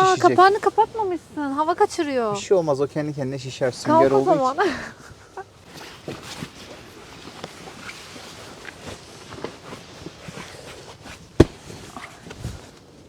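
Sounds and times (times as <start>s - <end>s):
light taps and scuffs: 8.7s - 12.9s
sharp knock: 11.4s - 11.6s.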